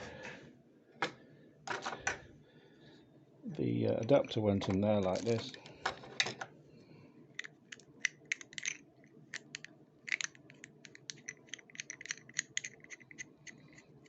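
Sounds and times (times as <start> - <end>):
faint low hum: 0.0 - 14.0
small parts clicking together: 4.6 - 6.5, 7.4 - 13.9.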